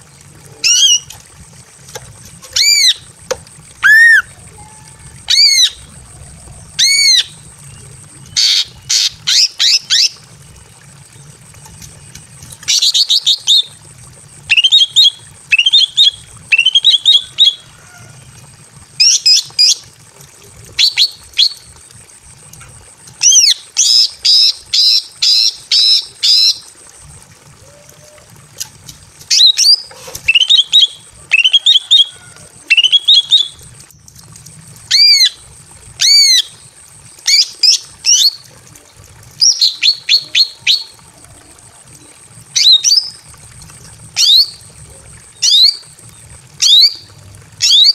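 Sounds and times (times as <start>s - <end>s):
bird whistled chirps: 3.8s - 5.8s, 29.3s - 33.6s.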